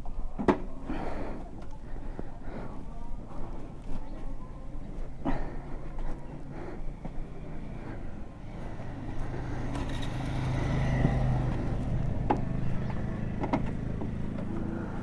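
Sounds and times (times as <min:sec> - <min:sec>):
motorcycle engine idling: 0:06.8 - 0:15.0.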